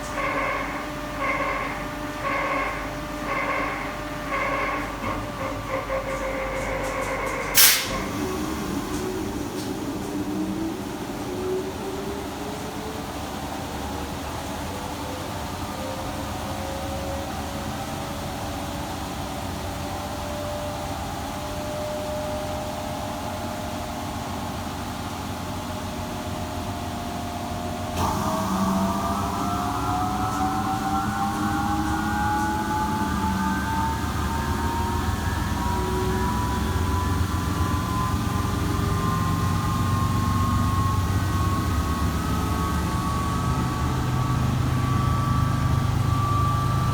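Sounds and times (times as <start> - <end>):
washing machine spinning: 0.0 - 46.9
motor whine rising in pitch: 17.3 - 46.9.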